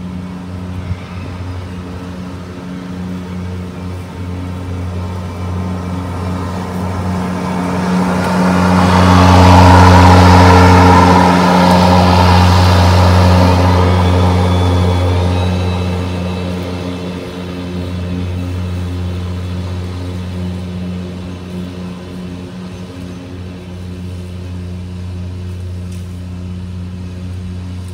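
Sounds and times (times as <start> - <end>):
lawn mower humming: 0.0 - 27.9.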